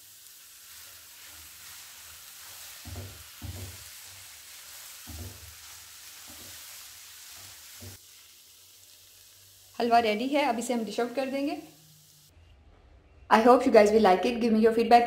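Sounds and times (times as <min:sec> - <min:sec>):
food sizzling in a pan: 0:00.0 - 0:12.4
wooden spatula knocking pan: 0:02.7 - 0:04.2, 0:05.0 - 0:06.7, 0:07.4 - 0:08.0.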